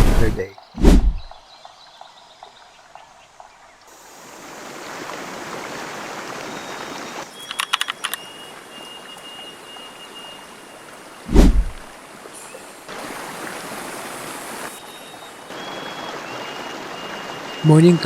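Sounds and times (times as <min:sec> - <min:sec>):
loud low thump: 0:00.0 - 0:01.3, 0:11.3 - 0:11.8
stream water rushing: 0:00.8 - 0:18.0.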